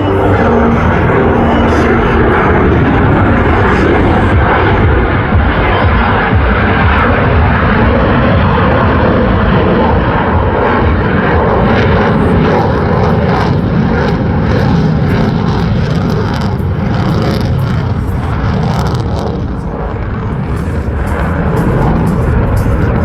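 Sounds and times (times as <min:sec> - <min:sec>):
jet engine roaring: 0:00.0 - 0:23.0.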